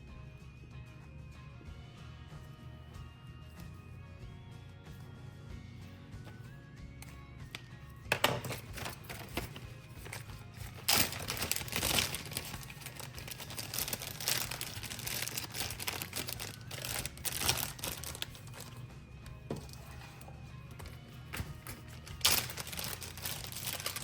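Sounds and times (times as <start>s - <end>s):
background music: 0.0s - 24.0s
plastic bag crinkling: 8.1s - 18.8s, 19.5s - 24.0s.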